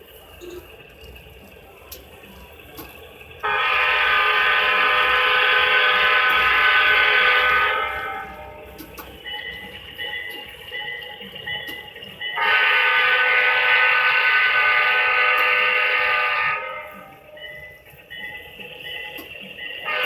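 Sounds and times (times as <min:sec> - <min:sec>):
model train running: 0:00.0 - 0:20.0
model locomotive horn blast: 0:03.4 - 0:09.2, 0:12.3 - 0:17.3, 0:19.1 - 0:20.0.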